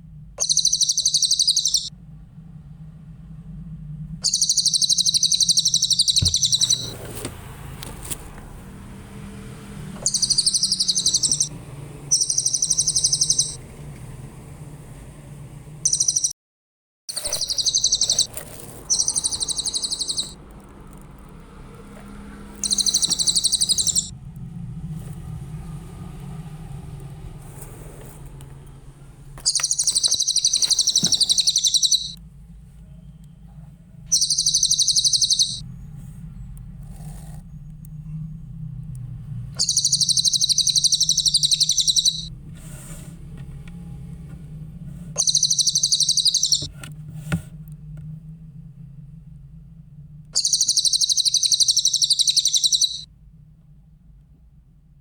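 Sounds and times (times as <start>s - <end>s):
steady low hum: 0.0s - 16.3s, 17.1s - 55.0s
songbird trilling: 0.4s - 1.9s, 4.2s - 7.0s, 10.0s - 11.5s, 12.1s - 13.6s, 15.8s - 16.3s, 17.1s - 20.4s, 22.6s - 24.1s, 29.4s - 32.2s, 34.1s - 35.6s, 39.6s - 42.3s, 45.2s - 46.7s, 50.4s - 53.1s.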